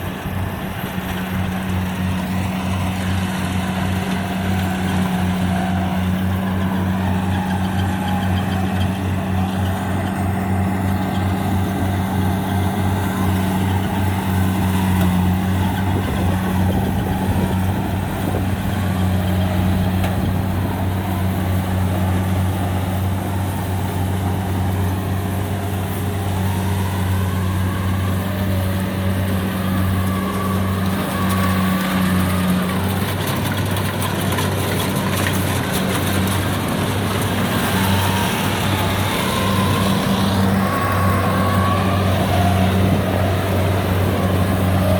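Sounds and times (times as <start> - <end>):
diesel engine humming: 0.0 - 44.9.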